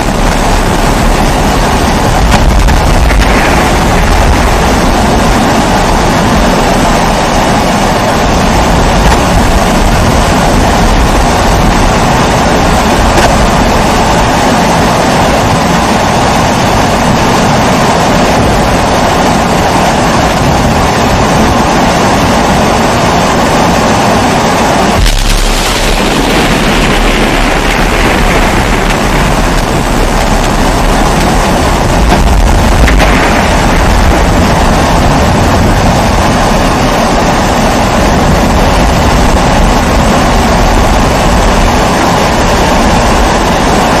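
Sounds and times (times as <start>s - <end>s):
pressure stove burner roaring: 24.9s - 41.7s.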